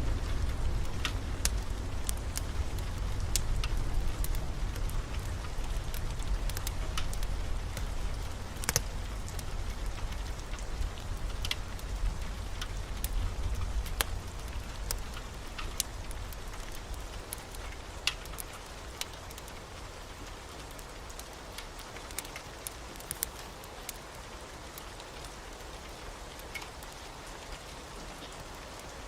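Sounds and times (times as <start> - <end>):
deep low rumble: 0.0 - 16.3
heavy rain: 0.0 - 29.0
wood fire crackling and popping: 0.0 - 29.0.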